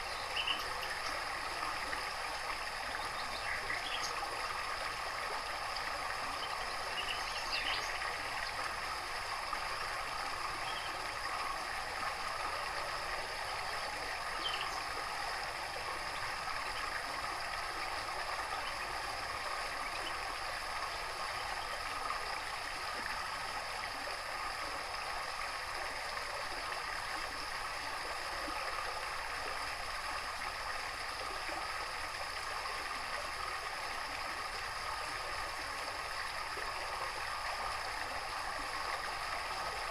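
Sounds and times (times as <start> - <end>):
faint bird chirps: 0.0 - 1.2, 3.0 - 4.2, 6.4 - 8.0, 14.4 - 14.9
water trickling and gurgling: 0.0 - 39.9.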